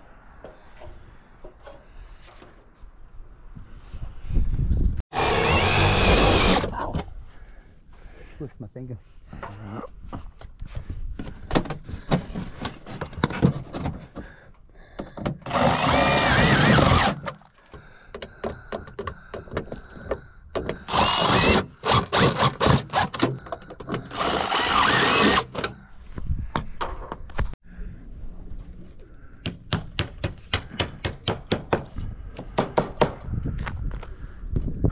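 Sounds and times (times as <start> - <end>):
power tool running: 5.1 - 6.7, 15.5 - 17.2, 20.9 - 23.1, 24.1 - 25.6.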